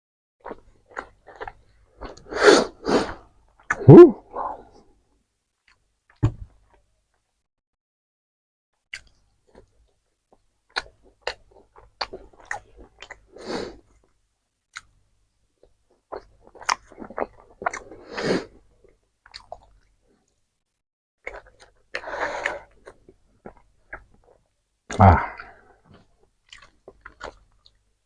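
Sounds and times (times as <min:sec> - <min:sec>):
person chewing food: 0:00.4 - 0:02.3, 0:08.9 - 0:13.3, 0:15.6 - 0:20.3, 0:21.2 - 0:27.9.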